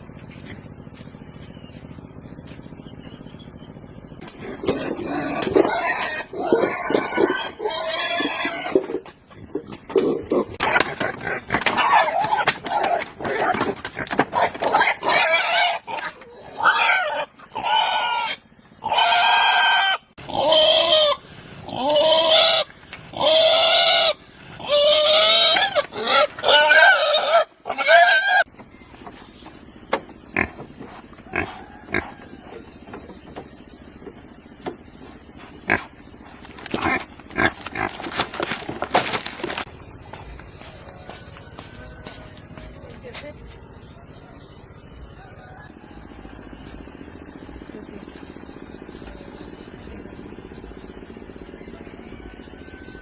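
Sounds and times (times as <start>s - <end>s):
pigs squealing: 4.2s - 28.5s, 30.4s - 32.8s, 36.6s - 38.7s.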